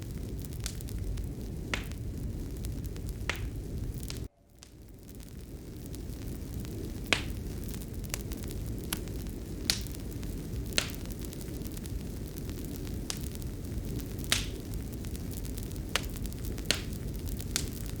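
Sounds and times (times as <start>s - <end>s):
fireplace burning rumble: 0.0s - 18.0s
wood popping: 3.2s - 5.2s.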